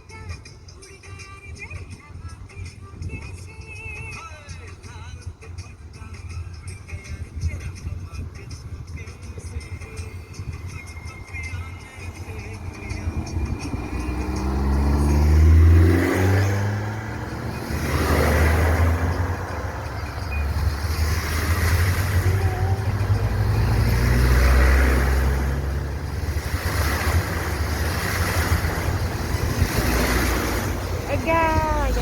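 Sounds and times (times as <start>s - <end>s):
water rushing and splashing: 10.0s - 32.0s
car engine revving: 11.3s - 32.0s.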